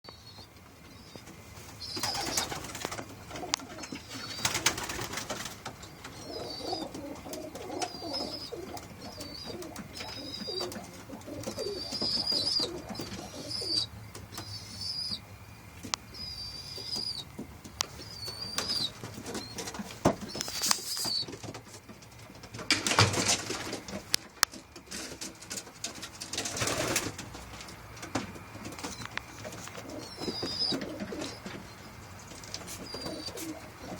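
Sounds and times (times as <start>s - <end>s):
pigeons cooing: 1.8s - 15.2s, 26.3s - 33.9s.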